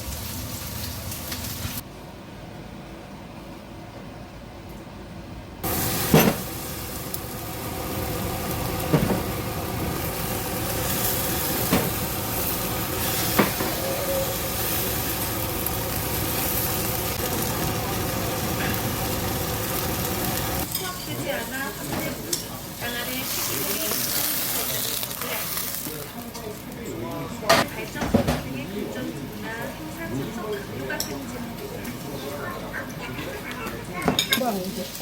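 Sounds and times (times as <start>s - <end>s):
pancake sizzling in oil: 5.6s - 20.7s.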